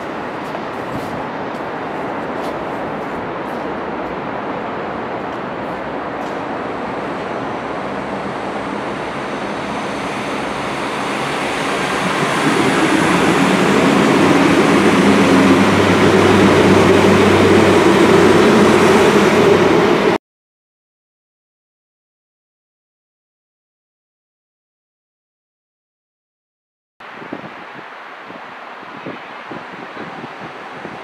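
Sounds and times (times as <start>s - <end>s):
train wheels running on rails: 0.0s - 20.2s.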